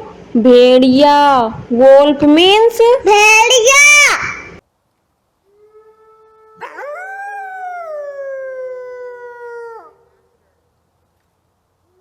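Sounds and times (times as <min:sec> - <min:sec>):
wolf howling: 0:05.6 - 0:10.2.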